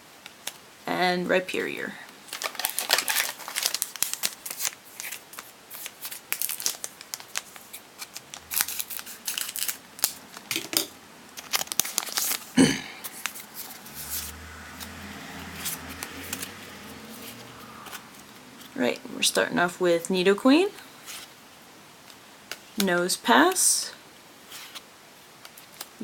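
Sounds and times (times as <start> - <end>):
foil wrapper crinkling and tearing: 2.2 - 10.6, 11.3 - 16.6, 25.4 - 26.0
cards handled: 15.6 - 18.8.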